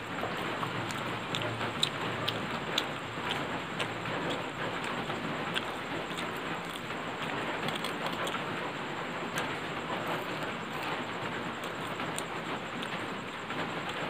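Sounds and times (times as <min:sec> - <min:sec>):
steady rain falling: 0:00.0 - 0:07.7, 0:08.4 - 0:14.0.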